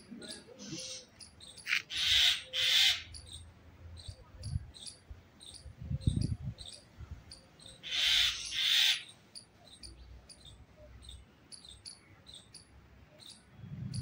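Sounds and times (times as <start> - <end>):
birds chirping high: 0.0 - 14.0
bird harsh squawks: 0.3 - 3.4, 7.6 - 9.2.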